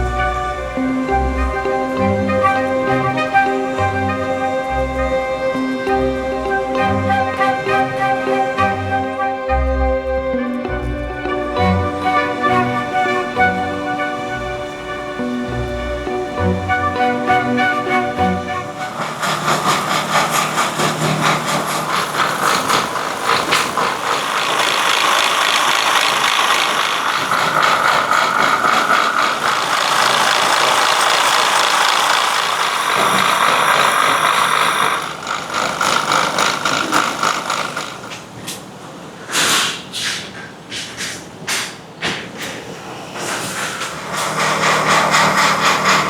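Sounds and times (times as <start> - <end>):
factory machinery rattling: 11.8 - 39.0, 41.3 - 46.0
sharp clacks: 17.2 - 38.7, 39.3 - 46.0.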